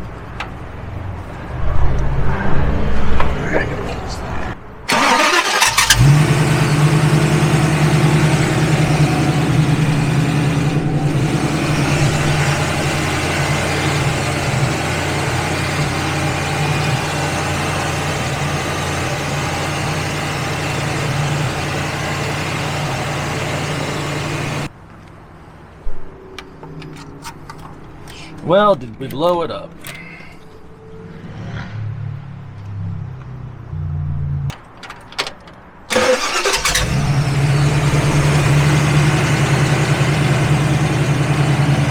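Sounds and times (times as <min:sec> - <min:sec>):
engine rattling: 0:04.9 - 0:24.7, 0:35.9 - 0:41.9
old car engine idling: 0:04.9 - 0:24.7, 0:35.9 - 0:41.9.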